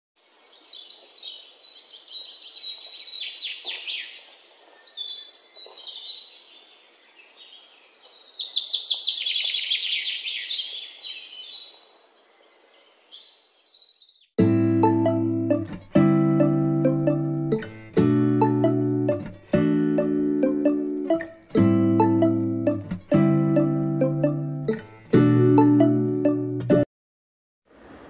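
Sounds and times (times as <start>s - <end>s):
songbird singing: 0.2s - 15.6s
piano music: 14.4s - 26.9s.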